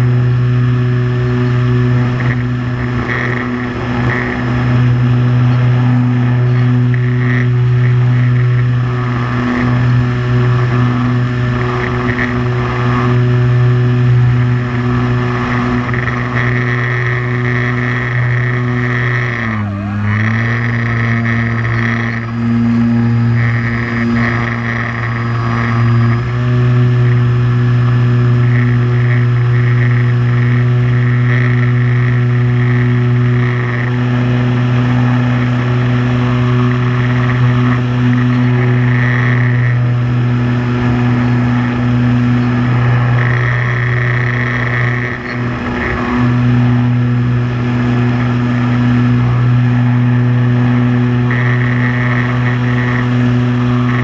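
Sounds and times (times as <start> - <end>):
drone propellers humming: 0.0 - 54.0.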